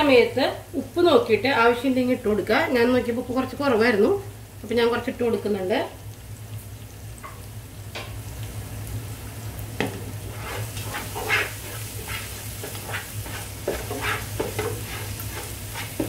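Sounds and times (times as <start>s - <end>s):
masala sizzling in a pot: 0.0s - 16.0s
spatula stirring and scraping: 9.8s - 16.0s.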